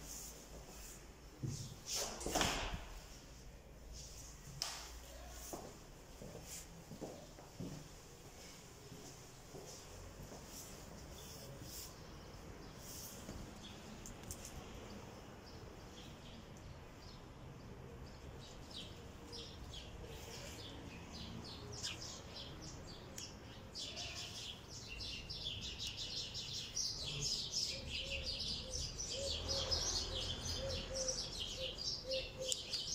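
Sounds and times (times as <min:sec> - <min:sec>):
small birds chirping: 0:10.4 - 0:32.9.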